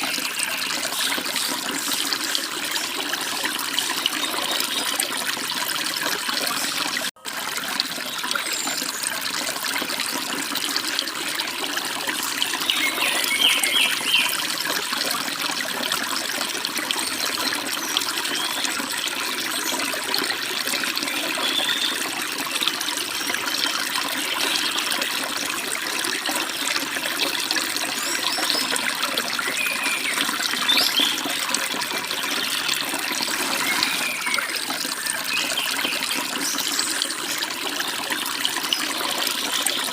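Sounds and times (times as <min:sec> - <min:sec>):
stream babbling over rocks: 0:00.0 - 0:39.9
birds chirping: 0:12.5 - 0:14.4, 0:29.4 - 0:31.4, 0:33.4 - 0:37.0.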